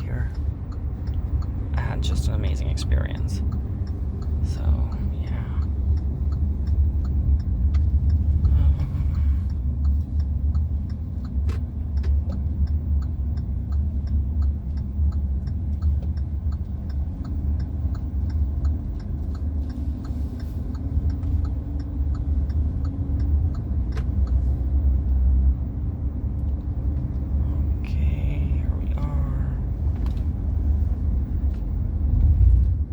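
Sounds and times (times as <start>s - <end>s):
car rumbling inside cabin: 0.0s - 32.9s
light ticking: 0.0s - 32.9s.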